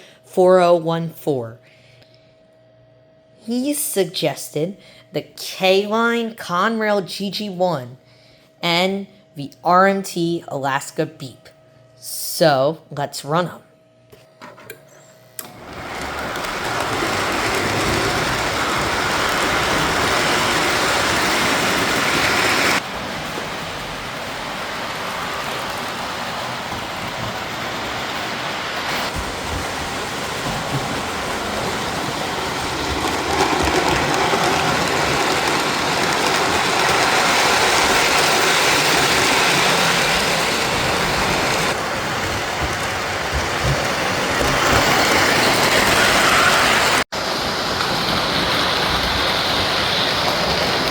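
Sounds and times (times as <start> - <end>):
model trains on rails: 15.5 - 50.9.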